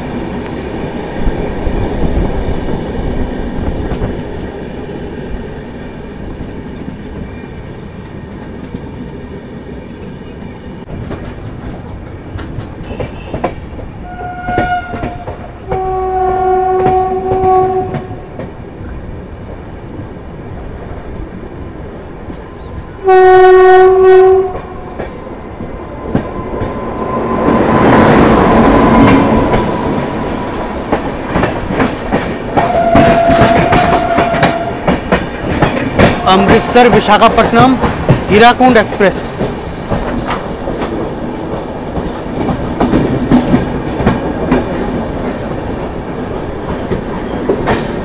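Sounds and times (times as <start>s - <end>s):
passing train rush: 0.0s - 48.0s
train coaches clickety-clack: 0.0s - 48.0s
train horn blasts: 12.8s - 18.3s, 23.0s - 25.0s, 32.6s - 35.0s.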